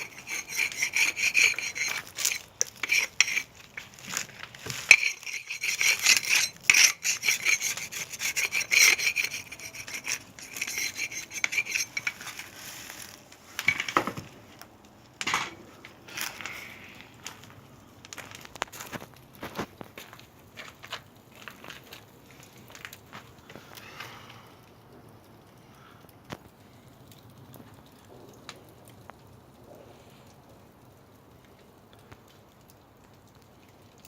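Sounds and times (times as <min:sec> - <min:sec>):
hand saw cutting wood: 0:00.0 - 0:12.3.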